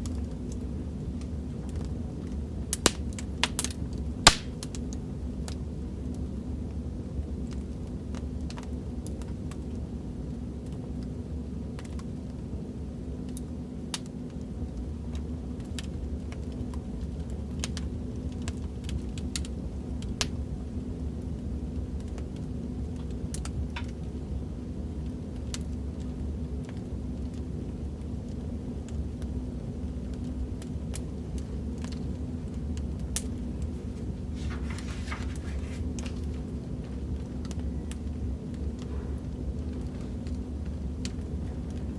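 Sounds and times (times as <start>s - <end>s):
fire pops and snaps: 0.0s - 6.3s, 13.3s - 20.6s, 21.2s - 24.2s, 25.0s - 41.9s
burning wood rumble: 0.0s - 41.9s.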